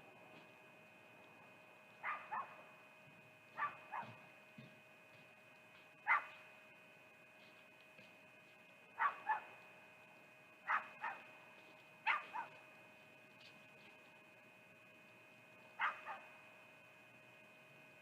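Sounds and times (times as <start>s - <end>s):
faint steady whine: 0.0s - 18.0s
animal barking: 2.0s - 2.7s, 3.6s - 4.3s, 6.0s - 6.5s, 9.0s - 9.6s, 10.6s - 11.4s, 12.0s - 12.7s, 15.8s - 16.4s.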